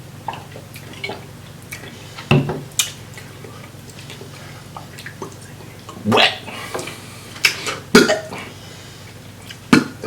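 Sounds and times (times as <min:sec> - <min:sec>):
steady low hum: 0:00.0 - 0:10.0
wet chewing and smacking: 0:00.2 - 0:06.0.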